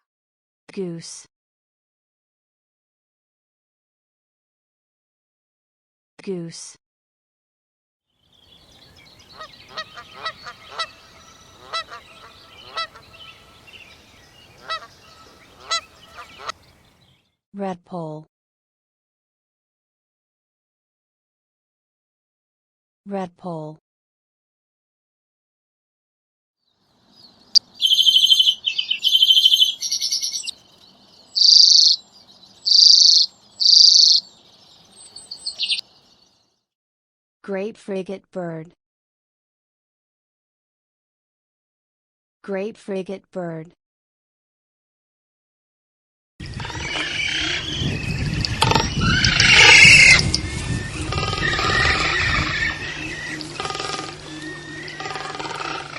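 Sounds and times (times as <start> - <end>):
bird trilled chattering: 9.1 - 16.5, 27.6 - 30.6, 31.2 - 32.0, 32.6 - 34.3, 35.1 - 35.9, 46.6 - 55.9
geese honking: 9.2 - 16.7, 27.6 - 30.5, 31.4 - 32.0, 32.7 - 34.2, 46.5 - 47.9, 48.6 - 55.9
faint short bird notes: 27.6 - 30.5, 31.3 - 32.0, 32.6 - 34.2
bird buzzy notes: 46.4 - 55.9.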